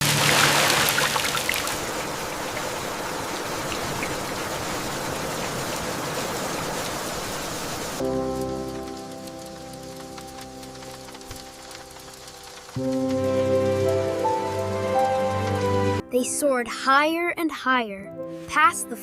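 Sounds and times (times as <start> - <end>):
soft ambient music: 0.0 - 5.9, 6.5 - 19.0
steady rain: 0.0 - 16.0.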